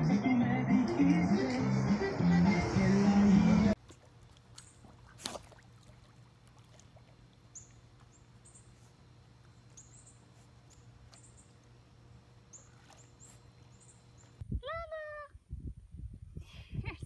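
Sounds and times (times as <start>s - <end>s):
low steady hum: 0.0s - 17.0s
small birds chirping: 7.5s - 9.0s, 9.6s - 11.6s.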